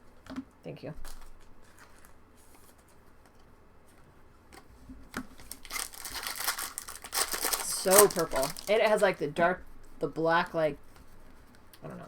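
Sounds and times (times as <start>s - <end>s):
trading cards clicking and rustling: 5.2s - 9.2s.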